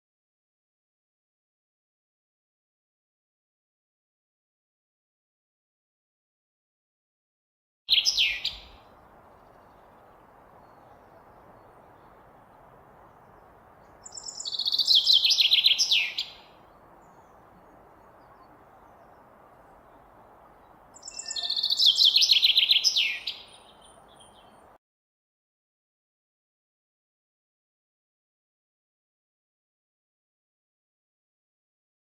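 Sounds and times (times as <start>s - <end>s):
songbird singing: 7.9s - 24.8s
faint steady hiss: 8.0s - 24.8s.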